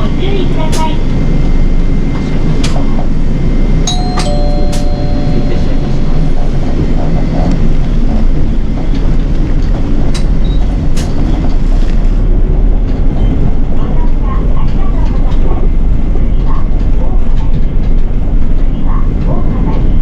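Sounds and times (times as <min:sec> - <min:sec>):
bus engine and road rumble: 0:00.0 - 0:20.0
two-note electronic chime: 0:03.9 - 0:07.2.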